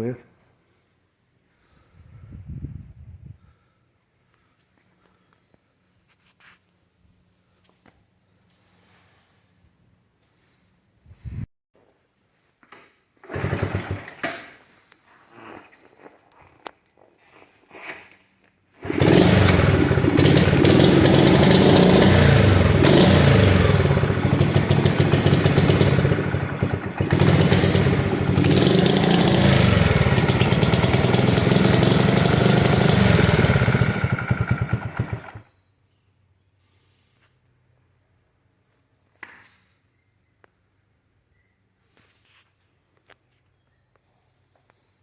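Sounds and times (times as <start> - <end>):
small motorcycle engine revving: 13.2 - 14.2, 18.8 - 35.5.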